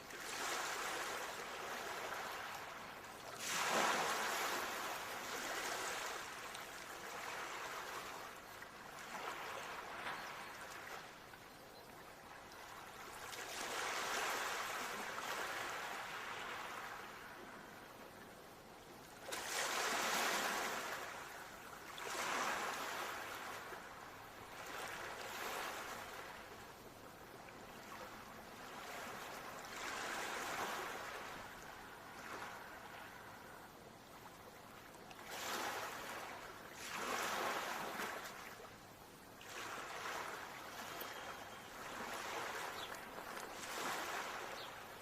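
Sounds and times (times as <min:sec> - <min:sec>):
ocean waves breaking: 0:00.1 - 0:11.2, 0:13.2 - 0:17.4, 0:19.3 - 0:21.4, 0:27.8 - 0:33.5, 0:35.2 - 0:38.6, 0:39.5 - 0:45.0.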